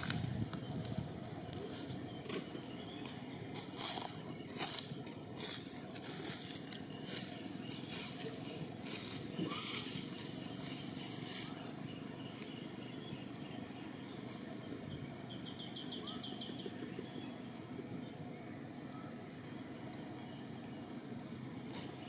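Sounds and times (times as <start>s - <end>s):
crackling rustles: 0.0s - 13.6s.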